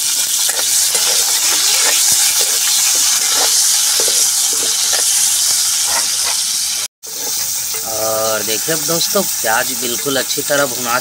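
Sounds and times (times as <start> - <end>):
oil popping and crackling: 0.0 - 11.0
onions sizzling in hot oil: 0.0 - 11.0.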